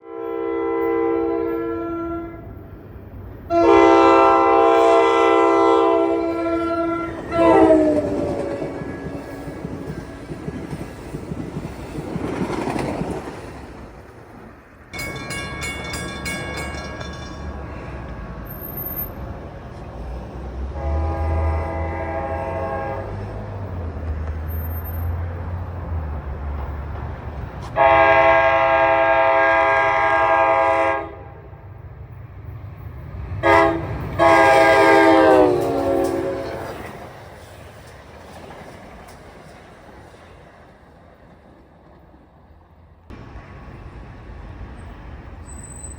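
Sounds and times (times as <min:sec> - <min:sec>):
locomotive air horn: 0:00.0 - 0:02.5, 0:03.5 - 0:08.9, 0:20.7 - 0:23.2, 0:27.6 - 0:31.5, 0:33.4 - 0:36.9
train rumble: 0:00.3 - 0:45.9.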